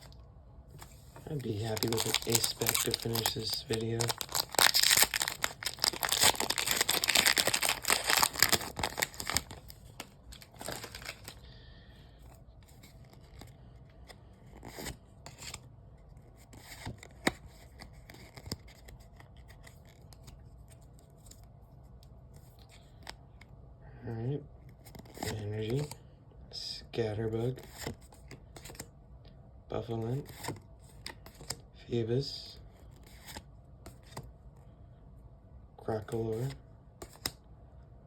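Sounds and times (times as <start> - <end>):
cards rustling and tapping: 0.7 - 11.4, 16.5 - 21.4, 24.8 - 26.0, 30.2 - 31.6, 36.1 - 37.4
foil wrapper crinkling and tearing: 1.2 - 11.4.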